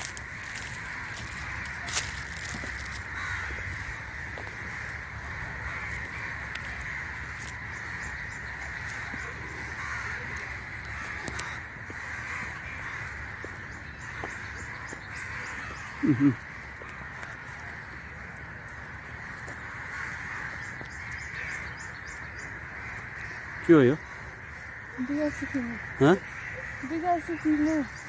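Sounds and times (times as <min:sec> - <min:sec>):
loud low-pitched calls: 0:00.0 - 0:18.2, 0:19.0 - 0:28.0
crows cawing: 0:00.0 - 0:28.0.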